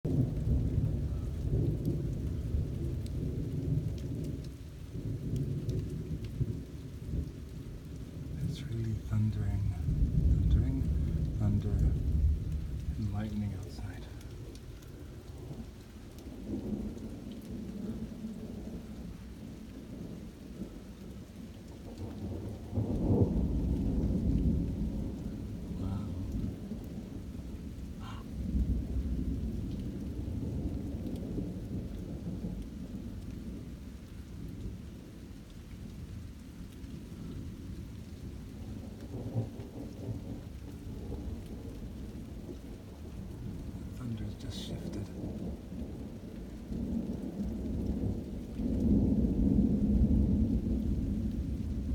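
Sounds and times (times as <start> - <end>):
rain falling: 0.0 - 51.9
thunder rumbling: 0.1 - 33.8, 36.9 - 51.9
loud thunder peal: 8.4 - 14.2.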